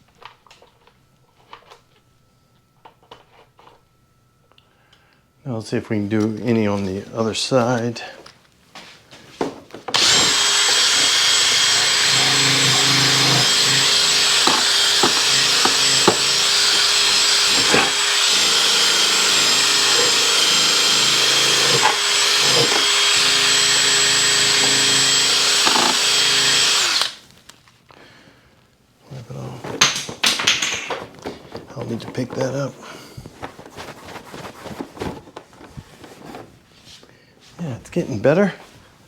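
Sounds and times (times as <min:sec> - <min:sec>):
electric drill whining: 0:09.9 - 0:27.3.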